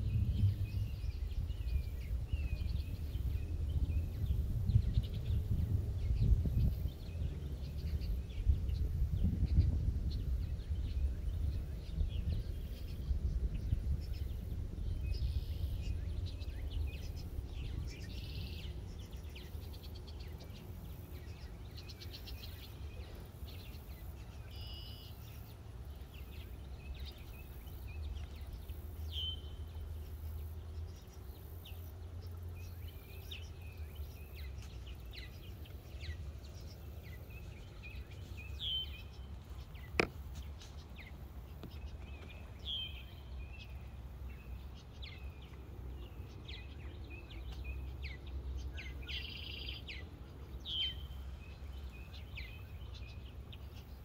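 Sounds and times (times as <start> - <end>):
low rumble: 0.0 - 20.6
bird chirps and calls: 0.0 - 54.0.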